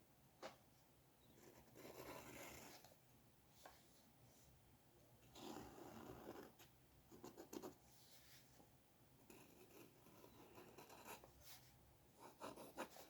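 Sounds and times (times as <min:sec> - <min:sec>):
drawing tool scratching paper: 0:01.4 - 0:02.9, 0:05.3 - 0:06.6, 0:09.2 - 0:13.0.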